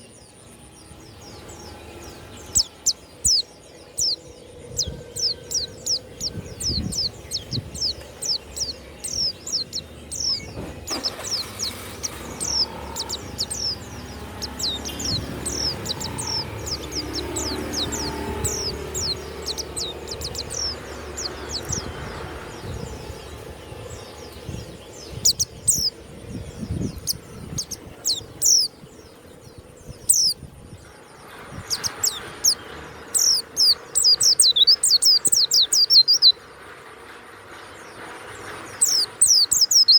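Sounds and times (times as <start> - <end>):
low rumbling background noise: 0.0 - 39.9
bird chirping high sharp notes: 1.3 - 28.8.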